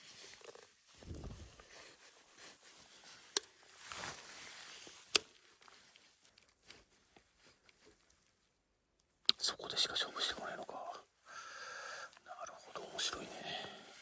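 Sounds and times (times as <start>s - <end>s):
soft rustling: 0.0s - 8.9s.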